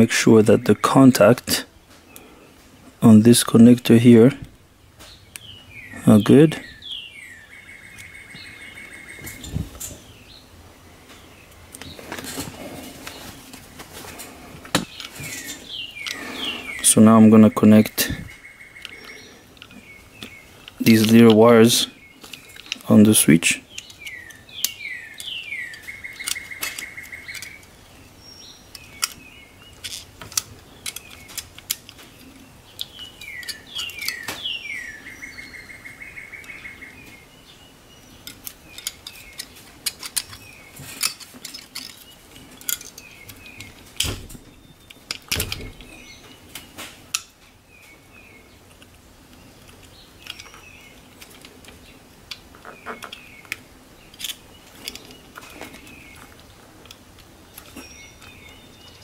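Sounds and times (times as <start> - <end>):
songbird chirps and buzzy trill: 0.0 - 59.0
plastic clicks and knocks: 51.2 - 53.6.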